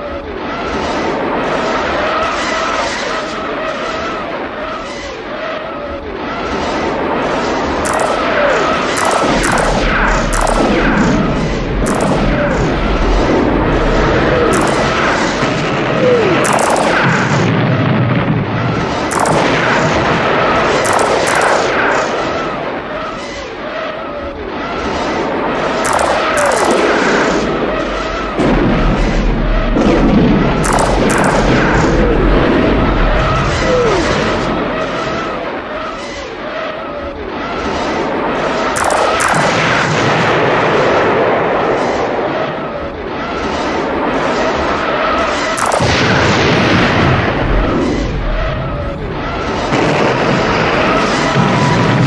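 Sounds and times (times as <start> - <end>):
explosions: 7.8 - 22.7, 25.8 - 35.8, 38.8 - 41.3, 45.6 - 52.0
sharp cracks: 7.8 - 22.7, 25.8 - 35.8, 38.8 - 40.7, 45.6 - 52.0
weapons fire: 7.8 - 23.1, 25.8 - 35.8, 38.8 - 41.0, 45.6 - 52.0
wavering electronic tones: 7.9 - 17.7, 19.1 - 20.1, 20.8 - 22.2, 25.9 - 35.6, 38.8 - 39.8, 45.6 - 52.0
zaps falling in pitch: 7.9 - 17.8, 19.1 - 20.2, 20.8 - 22.3, 25.8 - 35.6, 38.8 - 40.0, 45.6 - 52.0
deep rumble: 7.9 - 18.3, 26.4 - 35.6, 45.6 - 52.0
heavy low boom: 7.9 - 22.6, 25.8 - 35.8, 45.6 - 52.0.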